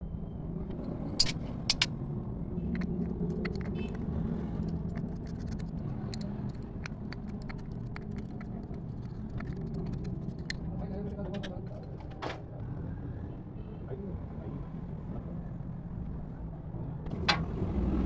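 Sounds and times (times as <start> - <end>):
metallic clicks and clinks: 1.2 - 1.9.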